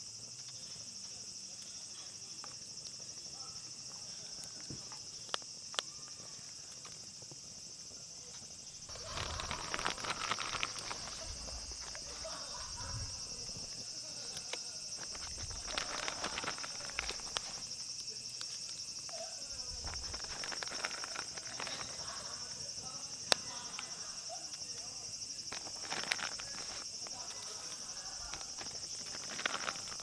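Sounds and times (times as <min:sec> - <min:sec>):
insects trilling: 0:00.0 - 0:30.0
clicking and knocking handling noises: 0:08.9 - 0:17.7, 0:19.6 - 0:22.0, 0:25.5 - 0:30.0.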